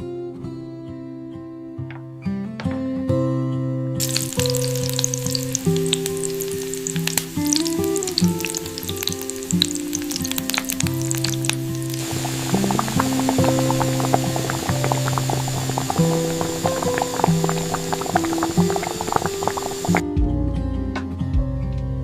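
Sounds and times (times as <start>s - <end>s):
soft guitar music: 0.0s - 22.0s
food sizzling in frying pan: 4.0s - 20.0s.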